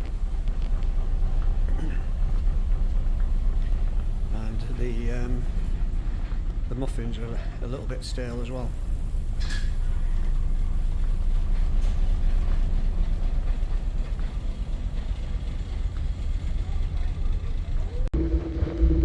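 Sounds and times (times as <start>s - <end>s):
ferry engine rumble: 0.0s - 19.0s
steady hum with held tone: 18.2s - 19.0s.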